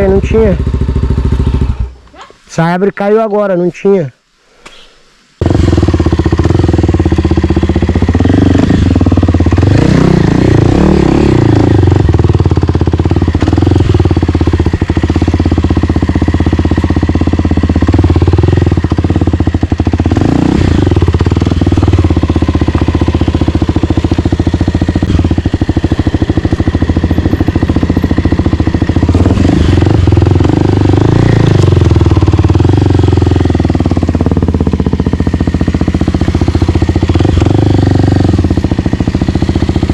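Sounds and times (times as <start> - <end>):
dirt bike engine revving: 5.4 - 39.9.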